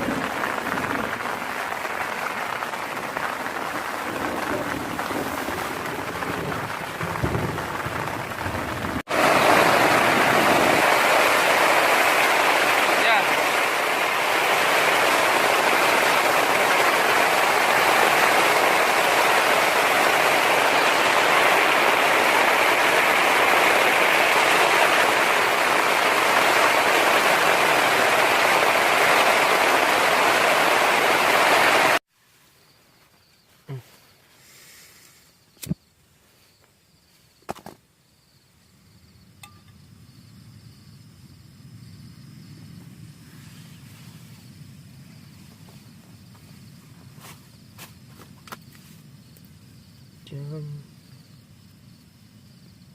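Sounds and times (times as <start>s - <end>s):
heavy rain falling: 0.0s - 32.0s.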